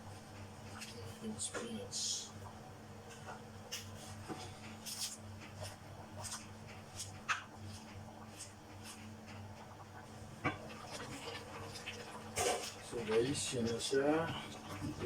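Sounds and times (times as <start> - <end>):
steady low hum: 0.0 - 15.0
utensil scraping in a pot: 3.1 - 9.8, 10.5 - 15.0.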